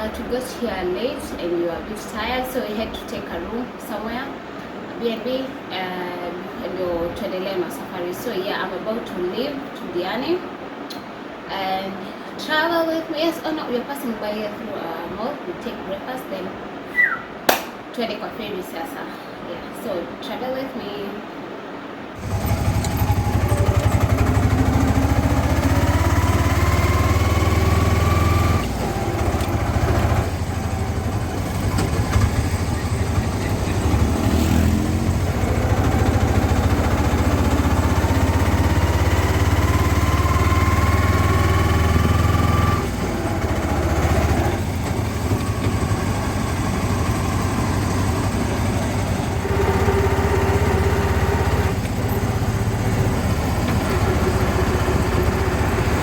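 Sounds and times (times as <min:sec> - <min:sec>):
engine whine rising in pitch: 0:22.2 - 0:56.0
vehicle engine rumble: 0:22.2 - 0:56.0.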